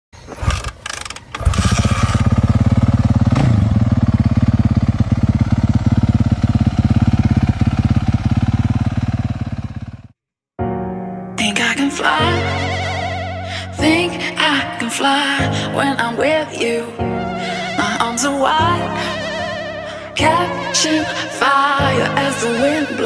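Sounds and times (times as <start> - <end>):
motorcycle engine idling: 0.8 - 10.2.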